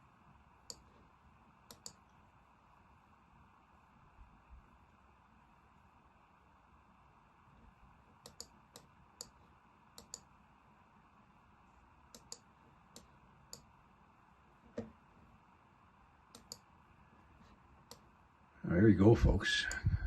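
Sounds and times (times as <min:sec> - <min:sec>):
computer mouse clicking: 0:00.6 - 0:00.9, 0:01.6 - 0:02.2, 0:08.1 - 0:09.4, 0:10.0 - 0:10.3, 0:12.1 - 0:13.7, 0:16.3 - 0:16.7, 0:17.8 - 0:18.1.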